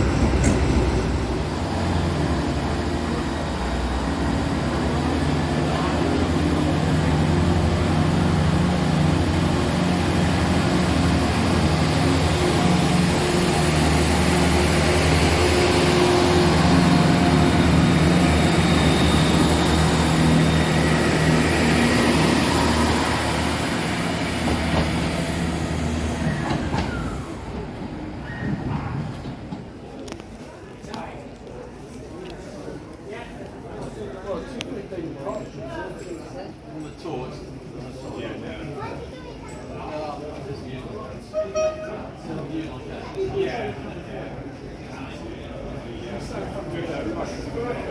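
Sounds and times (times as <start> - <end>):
diesel locomotives droning: 0.0 - 29.1.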